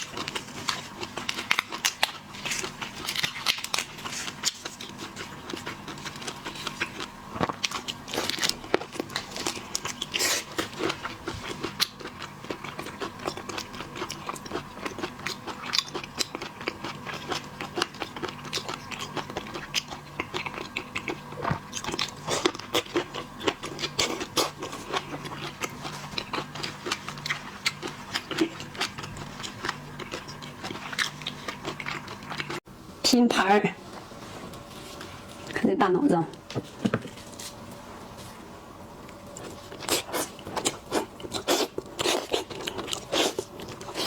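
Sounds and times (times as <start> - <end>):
chewing and crunching seafood: 0.0 - 32.6, 39.0 - 44.0.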